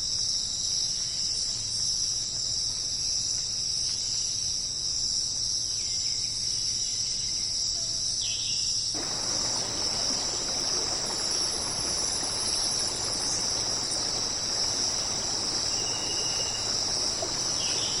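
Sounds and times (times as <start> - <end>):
background hiss: 9.0 - 18.0
insect trill: 9.0 - 18.0.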